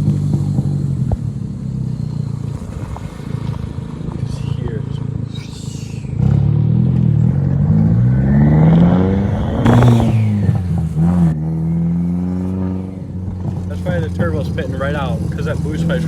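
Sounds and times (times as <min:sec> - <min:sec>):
turbocharged car engine accelerating: 0:00.0 - 0:16.0
rush of air at gear change: 0:02.4 - 0:07.3, 0:08.0 - 0:11.4.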